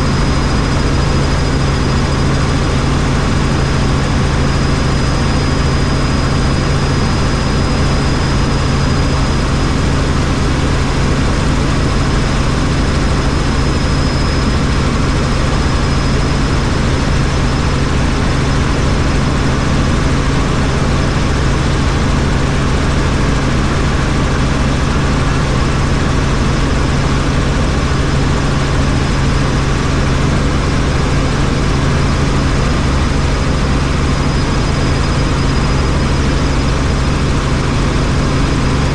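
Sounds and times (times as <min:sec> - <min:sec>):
thin high whine: 0:00.0 - 0:20.2, 0:29.0 - 0:38.9
helicopter rotor and engine drone: 0:00.0 - 0:38.9.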